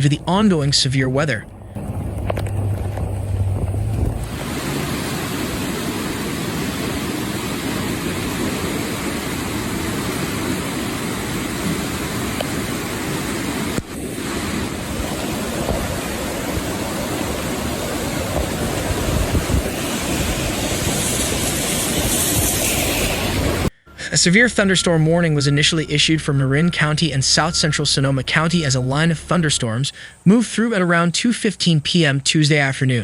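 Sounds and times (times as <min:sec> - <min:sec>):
floodwater rushing: 0:00.0 - 0:23.7
wind: 0:00.0 - 0:33.0.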